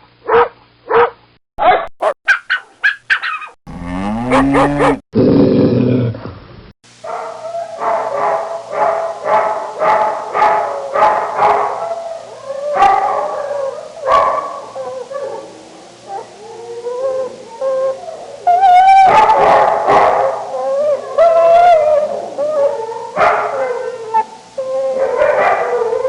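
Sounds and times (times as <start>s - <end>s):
dog yelping: 0.3s - 5.0s, 12.7s - 13.3s, 14.0s - 14.6s, 18.5s - 22.6s, 23.2s - 23.7s, 24.9s - 25.9s
dog howling: 3.7s - 5.0s, 10.4s - 26.0s
dog whining: 3.7s - 5.0s.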